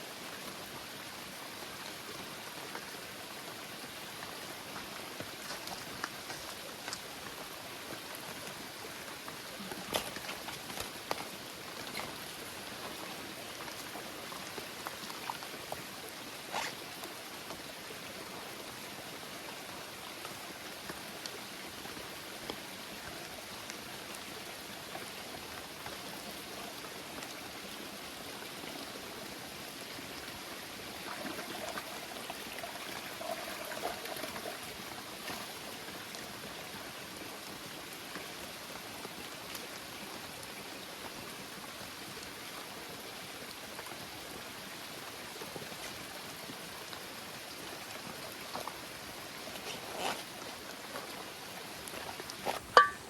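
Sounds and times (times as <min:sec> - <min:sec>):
heavy rain in forest: 0:00.0 - 0:52.9
water drips: 0:47.8 - 0:53.0.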